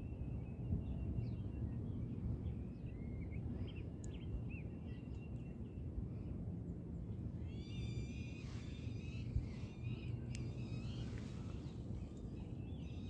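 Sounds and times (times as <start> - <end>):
steady low rumble: 5.9 - 13.0
birds chirping: 7.4 - 13.0.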